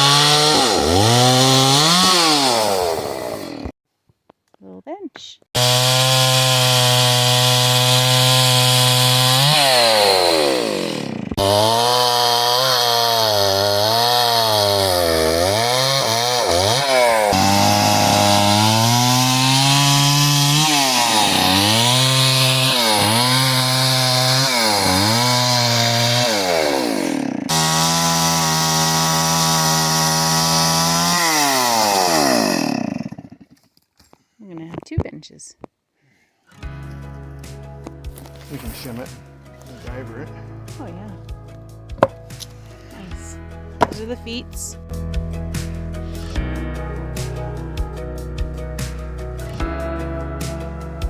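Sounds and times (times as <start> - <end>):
chainsaw cutting wood: 0.0 - 3.8, 5.6 - 33.8, 41.9 - 43.2, 43.8 - 44.4.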